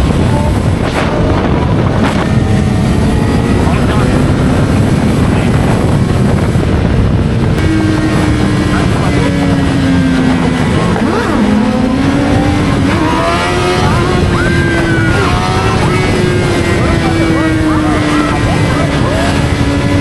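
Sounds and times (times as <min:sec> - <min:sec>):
motorcycle engines rumbling: 0:00.0 - 0:20.0.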